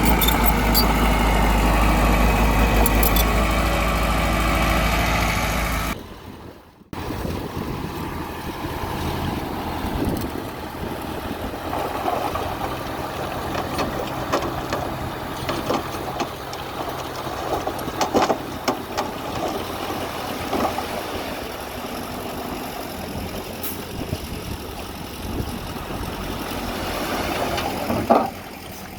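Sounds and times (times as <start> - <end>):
metallic clanks and knocks: 0.0 - 1.2, 2.8 - 3.5, 13.4 - 19.6
bulldozer engine running: 0.0 - 28.9.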